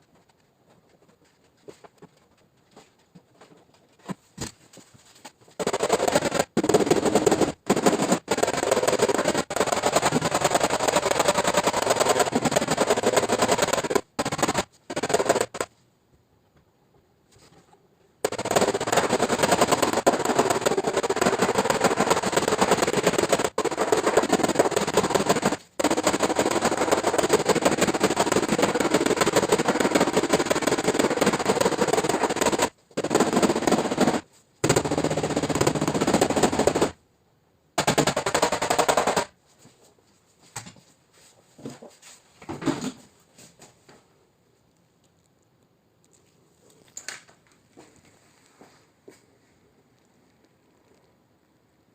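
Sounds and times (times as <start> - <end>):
power tool hammering rapidly: 5.6 - 15.7, 18.2 - 37.0, 37.8 - 39.3.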